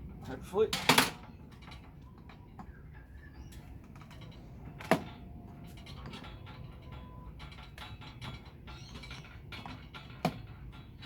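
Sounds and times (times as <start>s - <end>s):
hand tools clicking and knocking: 3.9s - 11.0s.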